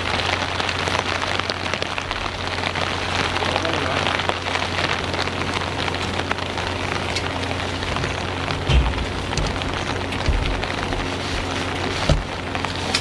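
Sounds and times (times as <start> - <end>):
heavy rain falling: 0.0 - 13.0
steady low hum: 1.9 - 13.0
brief low thump: 8.6 - 10.6.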